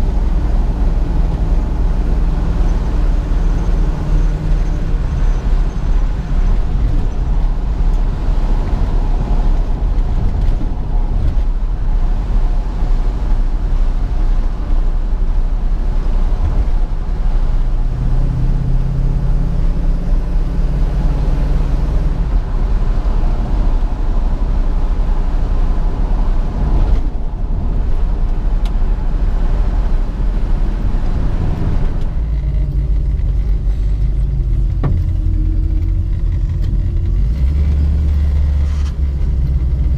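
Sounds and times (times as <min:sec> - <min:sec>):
road noise: 0:00.0 - 0:39.9
car engine running: 0:19.0 - 0:39.9.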